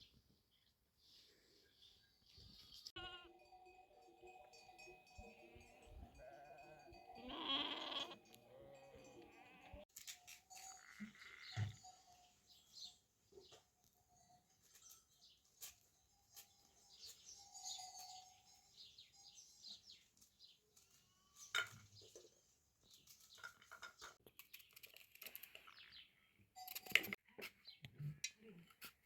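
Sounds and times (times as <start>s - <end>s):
small birds chirping: 10.6s - 26.5s.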